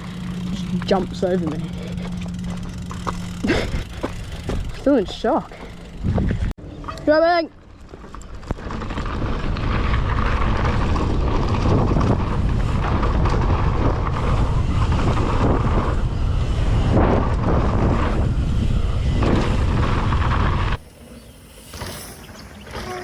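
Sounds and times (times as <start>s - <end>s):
bike knocks and rattles: 0.0s - 6.5s, 7.8s - 16.1s
wind buffeting microphone: 0.0s - 6.5s, 8.3s - 21.6s
knobby tyres rushing on dirt: 0.0s - 23.0s.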